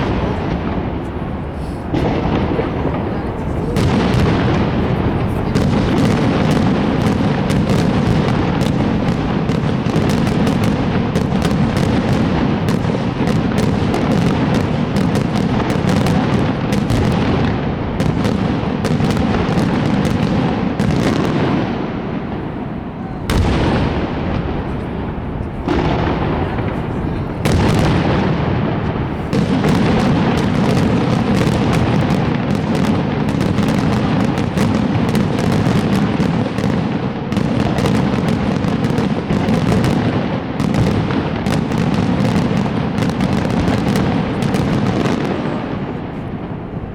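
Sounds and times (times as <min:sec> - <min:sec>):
loud firework bang: 0:00.0 - 0:36.7
fireworks crackling bangs: 0:00.0 - 0:46.9.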